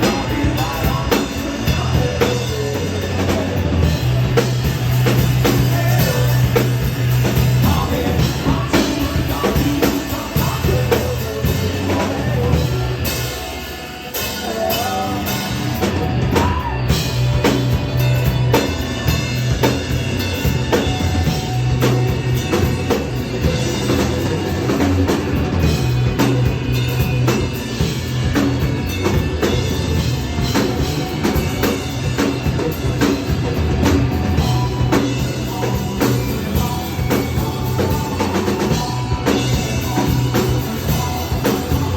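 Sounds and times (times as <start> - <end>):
person singing: 0.0 - 4.4, 5.1 - 13.5, 14.1 - 17.7, 34.2 - 41.9
rock band playing live: 0.0 - 41.9.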